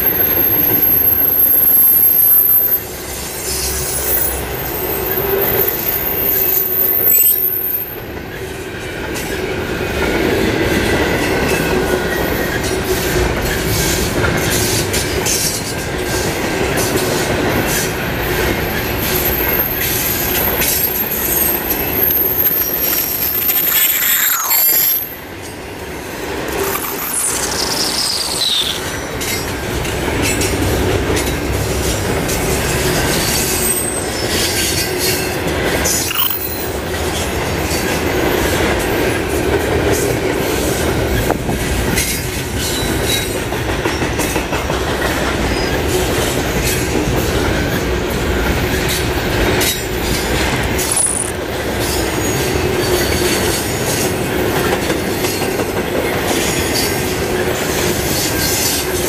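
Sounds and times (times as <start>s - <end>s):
train wheels rumbling on rail: 0.0s - 59.0s
wheel squeals: 18.7s - 25.2s, 26.6s - 29.5s, 50.8s - 53.4s.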